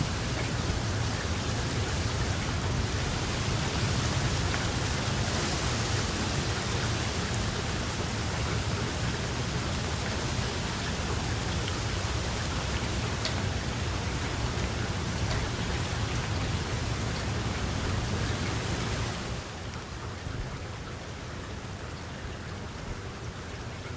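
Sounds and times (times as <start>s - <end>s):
steady rain hiss: 0.0s - 23.9s
single raindrops ticking: 10.0s - 19.8s.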